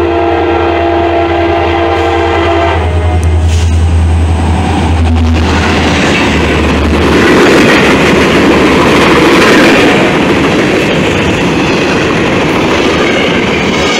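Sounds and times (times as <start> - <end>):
diesel locomotive drone: 0.0 - 13.9
freight cars rumbling on rails: 0.0 - 13.9.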